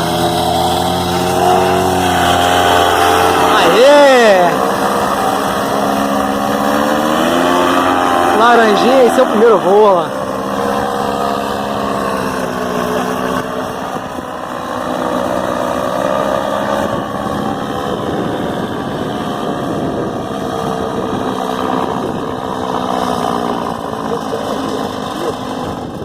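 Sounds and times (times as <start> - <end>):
paramotor engine and propeller: 0.0 - 26.0.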